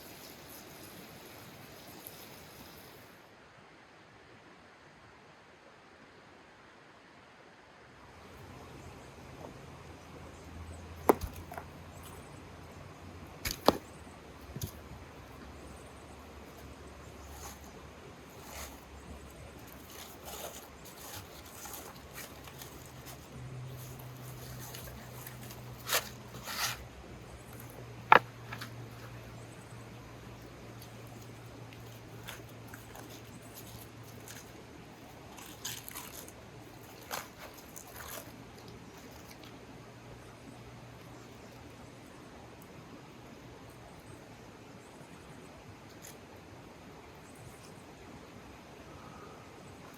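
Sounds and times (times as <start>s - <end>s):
faint steady hum: 0.0s - 49.9s
person eating crunchy food: 35.3s - 38.4s.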